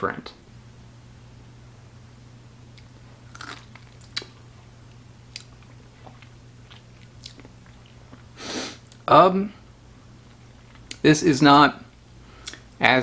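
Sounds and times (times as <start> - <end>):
person biting and chewing lime: 2.7 - 4.4, 5.3 - 9.0
wet mouth clicks and smacks: 12.4 - 12.6.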